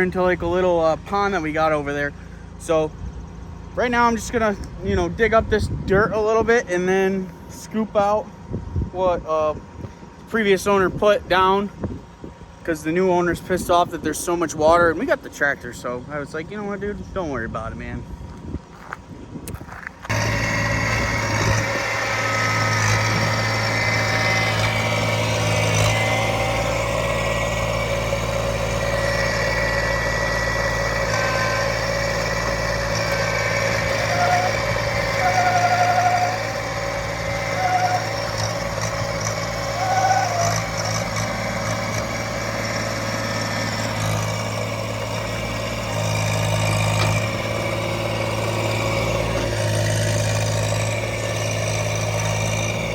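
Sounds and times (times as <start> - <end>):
tractor engine running: 0.0 - 52.9
short high squeaks: 31.0 - 36.6, 37.4 - 38.6, 39.2 - 41.0.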